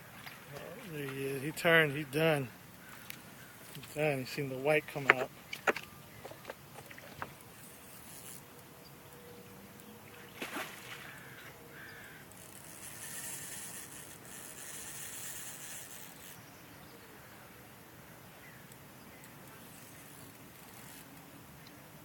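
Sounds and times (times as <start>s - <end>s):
faint outdoor ambience: 0.0s - 22.0s.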